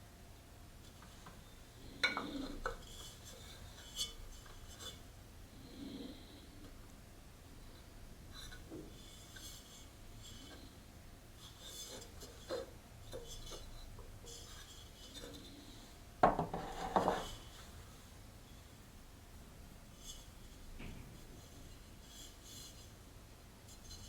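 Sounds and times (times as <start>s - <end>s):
objects rubbing on tabletop: 11.4s - 18.7s
rough scrape: 16.5s - 18.0s.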